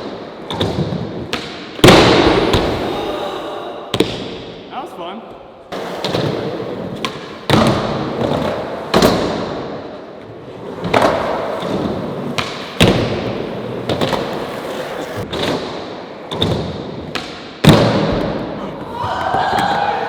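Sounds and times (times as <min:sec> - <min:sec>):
skateboard wheels rolling: 0:05.7 - 0:17.2.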